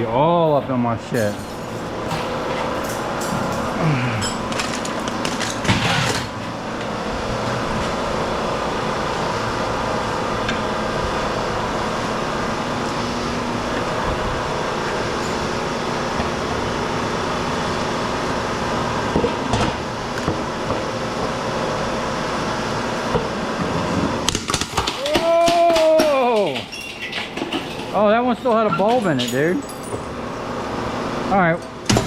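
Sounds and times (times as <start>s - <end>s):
metal crunching and clattering: 1.1s - 6.6s, 23.6s - 30.1s
hydraulic cutter running: 1.2s - 25.2s.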